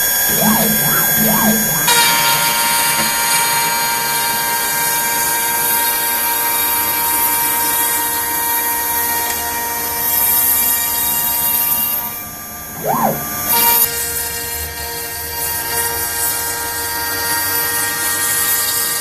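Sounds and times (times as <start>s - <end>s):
router spindle cutting plastic: 0.3s - 1.9s.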